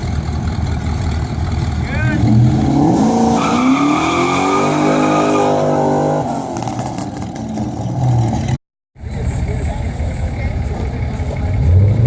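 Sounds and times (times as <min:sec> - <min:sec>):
vehicle engine revving: 0:00.0 - 0:08.6, 0:10.7 - 0:12.0.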